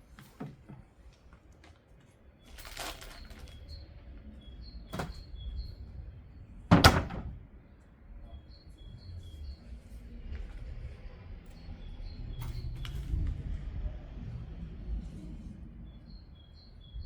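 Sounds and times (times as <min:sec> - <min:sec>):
faint birds chirping: 0:00.1 - 0:13.6, 0:14.8 - 0:17.0
rustling: 0:02.5 - 0:03.8.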